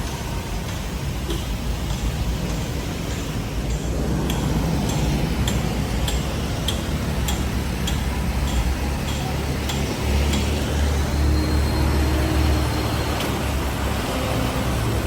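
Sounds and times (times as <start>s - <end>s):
vehicle engine idling: 0.0s - 15.0s
sharp ticking: 0.6s - 11.6s.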